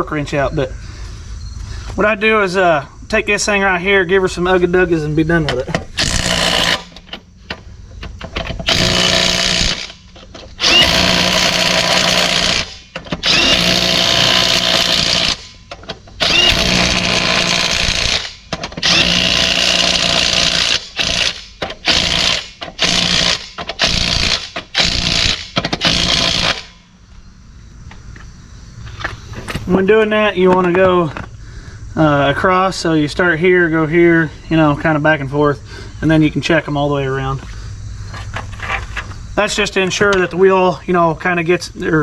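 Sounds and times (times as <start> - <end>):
impact wrench running: 5.9 - 26.8.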